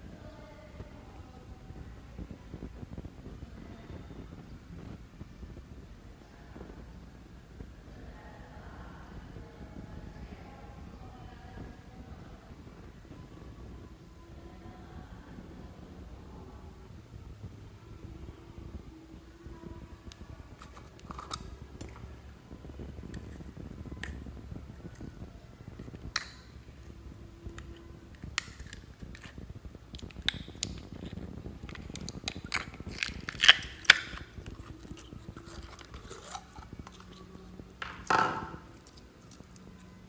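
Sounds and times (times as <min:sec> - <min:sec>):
crackling squelch: 0:19.4 - 0:40.0
sticky clicks and pops: 0:25.8 - 0:26.6, 0:27.4 - 0:39.6
slime squished by hand: 0:27.5 - 0:40.0.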